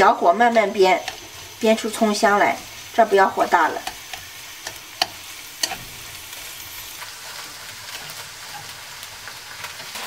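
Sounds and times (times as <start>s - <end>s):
scallions sizzling in oil: 0.0s - 10.0s
chopsticks clicking against wok: 1.0s - 1.4s, 3.6s - 5.8s.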